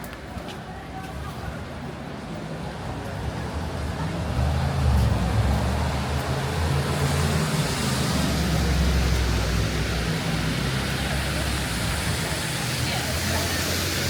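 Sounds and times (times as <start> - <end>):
vehicle engine rumble: 1.4 - 14.0
tyres hissing on wet road: 2.7 - 14.0.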